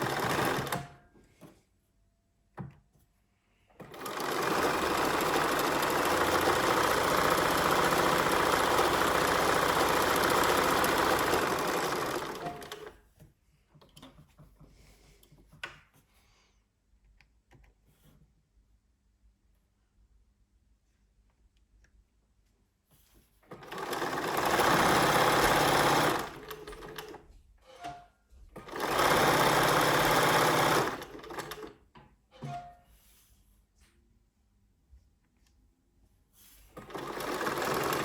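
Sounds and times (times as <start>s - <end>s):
sewing machine running: 0.0s - 0.9s, 3.8s - 13.0s, 23.5s - 27.2s, 28.6s - 31.8s, 36.8s - 38.0s.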